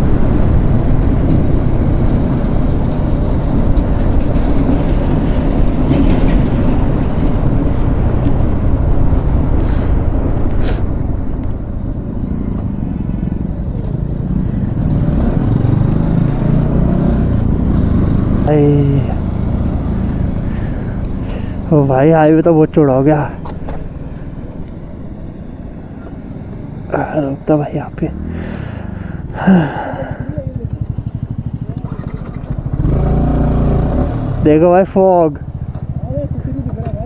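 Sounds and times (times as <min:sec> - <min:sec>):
wind rushing over microphone: 0:00.0 - 0:29.4
motorcycle engine and road noise: 0:00.0 - 0:37.0.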